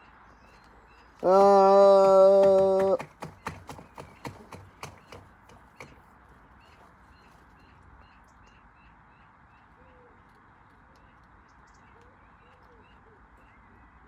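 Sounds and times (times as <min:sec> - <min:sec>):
run of knocks: 0:01.2 - 0:06.1.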